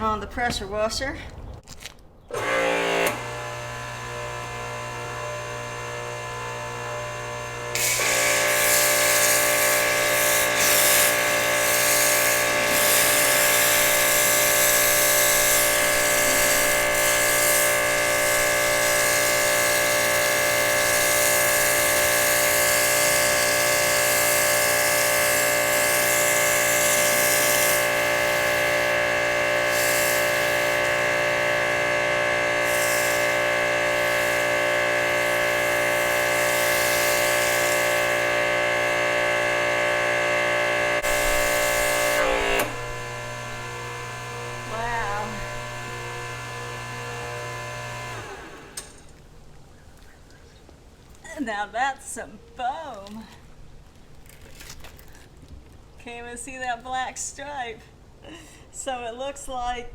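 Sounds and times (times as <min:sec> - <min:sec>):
pressure washer running: 0:02.4 - 0:49.1
spray hiss: 0:07.8 - 0:31.2, 0:32.6 - 0:38.3.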